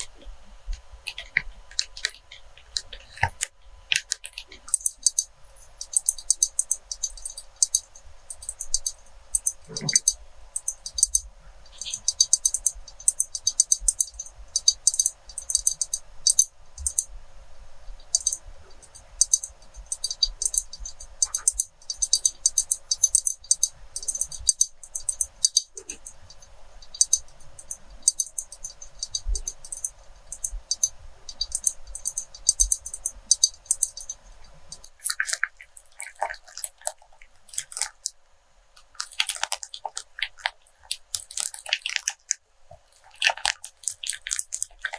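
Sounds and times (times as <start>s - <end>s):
light crisp tapping: 17.9s - 35.6s.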